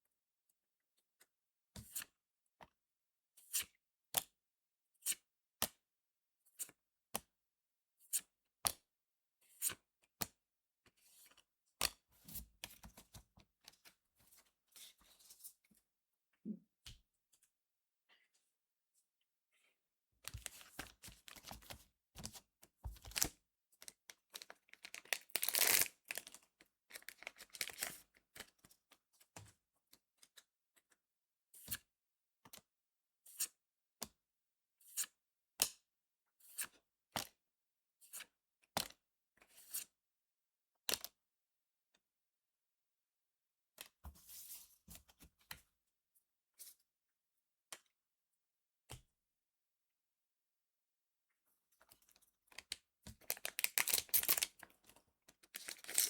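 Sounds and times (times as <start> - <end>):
foil wrapper tearing and crinkling: 24.7 - 26.3, 26.9 - 27.9, 53.3 - 54.5, 55.6 - 56.0.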